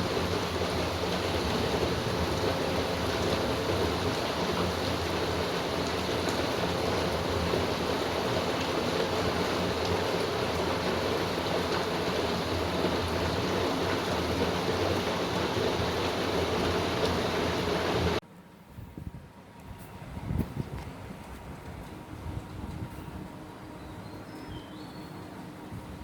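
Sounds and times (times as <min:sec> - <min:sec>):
steady rain falling: 0:00.0 - 0:18.2.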